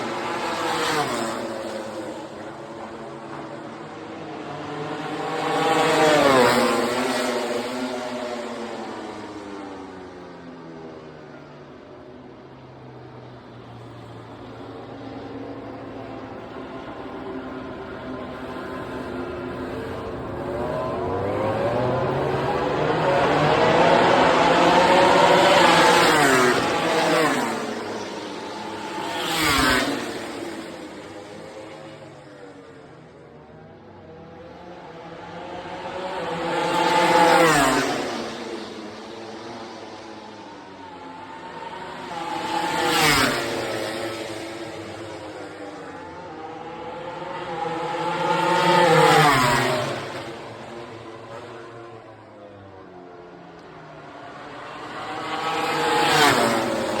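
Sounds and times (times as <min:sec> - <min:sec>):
racing motorcycles passing: 0:00.0 - 0:12.6, 0:13.2 - 0:57.0.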